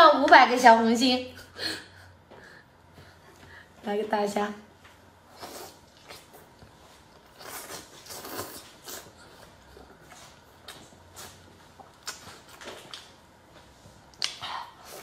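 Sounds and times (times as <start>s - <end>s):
person chewing and slurping: 5.3s - 13.0s.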